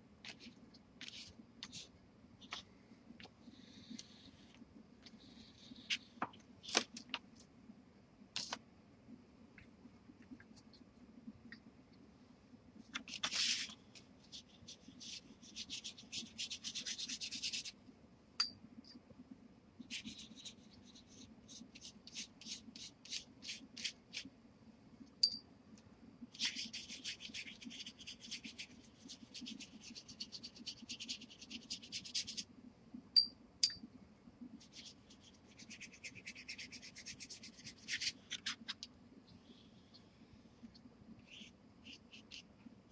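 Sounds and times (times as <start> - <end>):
oil pastel scribbling on paper: 14.3 - 17.8, 19.8 - 24.3, 26.4 - 32.4, 34.6 - 38.6, 41.2 - 42.5.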